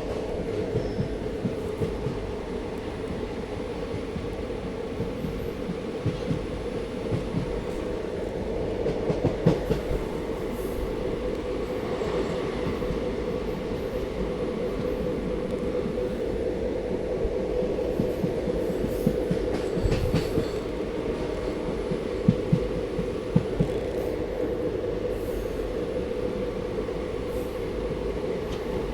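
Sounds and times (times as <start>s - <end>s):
train rumble and hum: 0.0s - 28.9s.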